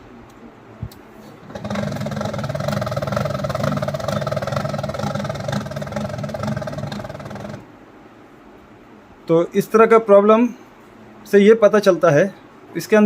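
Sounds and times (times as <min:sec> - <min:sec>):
printer mechanism clattering: 0:01.4 - 0:07.6.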